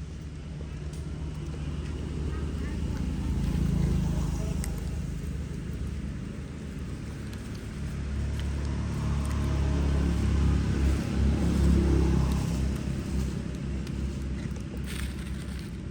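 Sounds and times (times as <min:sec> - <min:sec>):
passing motor vehicle rumble: 0:00.0 - 0:15.9.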